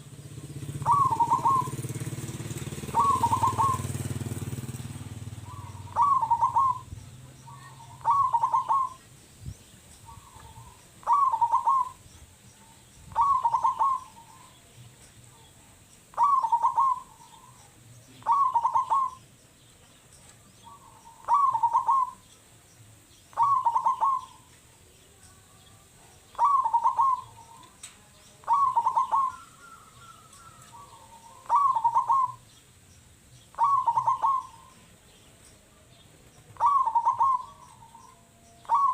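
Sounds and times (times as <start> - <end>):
dove cooing: 0.0 - 9.2, 10.0 - 12.2, 13.1 - 15.5, 16.1 - 19.3, 20.6 - 22.3, 23.3 - 24.8, 25.8 - 32.5, 33.5 - 35.1, 36.5 - 38.9.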